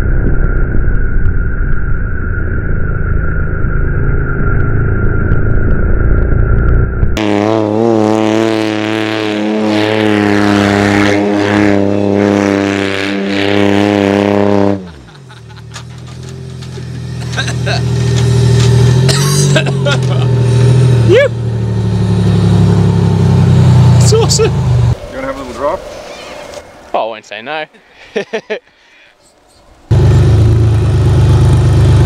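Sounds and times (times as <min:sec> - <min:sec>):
engine at high revs: 0:07.2 - 0:25.8, 0:29.9 - 0:32.0.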